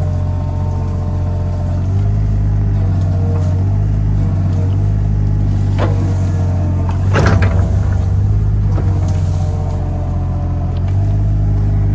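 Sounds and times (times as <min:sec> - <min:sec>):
diesel engine running: 0:00.0 - 0:11.9
machine scraping: 0:02.8 - 0:11.2.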